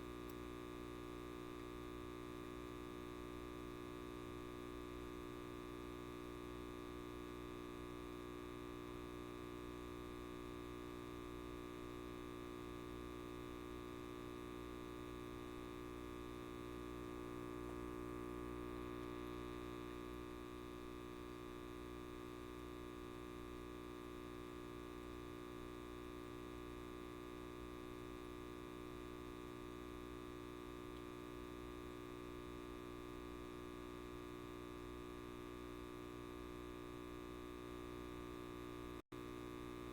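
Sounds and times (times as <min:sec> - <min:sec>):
light bulb buzzing: 0:00.0 - 0:23.0.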